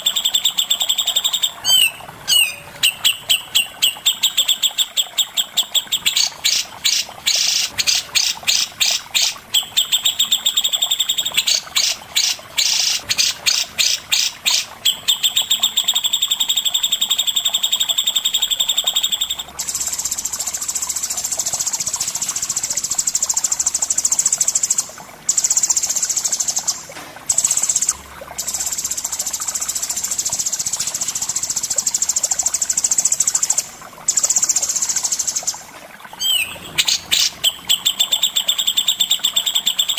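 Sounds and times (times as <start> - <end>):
songbird singing: 0.0 - 20.8, 36.2 - 39.9.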